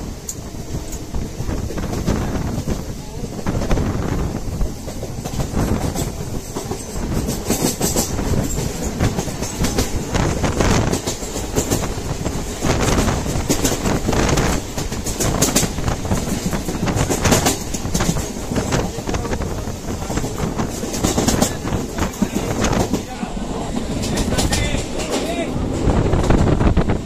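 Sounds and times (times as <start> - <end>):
train rolling rumble: 0.0 - 27.0
wheels clicking over rail joints: 4.8 - 19.3, 23.8 - 26.6.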